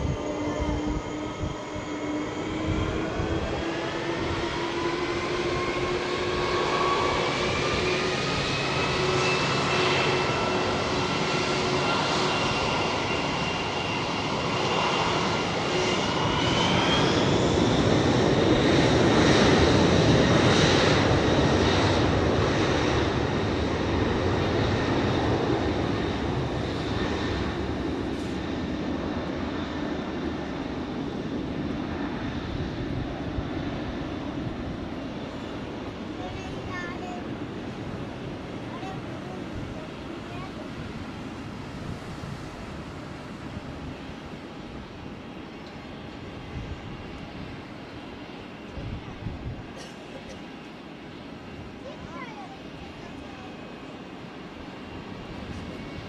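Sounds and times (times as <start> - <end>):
jet engines roaring with whine: 0.0 - 56.0.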